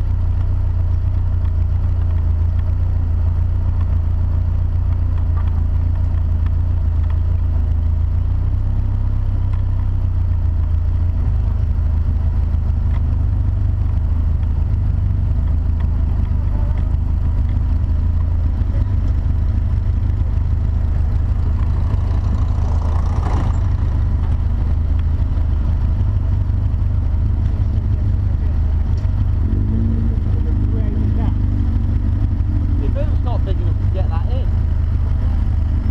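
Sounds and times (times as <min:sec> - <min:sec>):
car engine running at low speed: 0:00.0 - 0:35.9.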